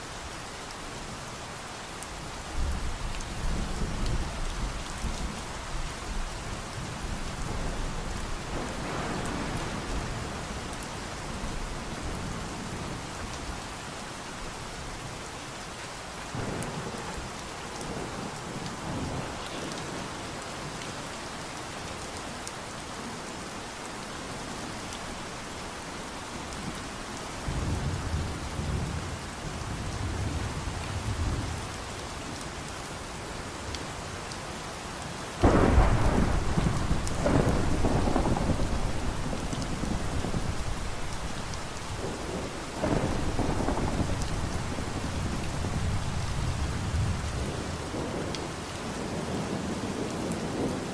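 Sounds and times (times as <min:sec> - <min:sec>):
steady rain falling: 0:00.0 - 0:50.9
thunder rolling: 0:35.4 - 0:48.3.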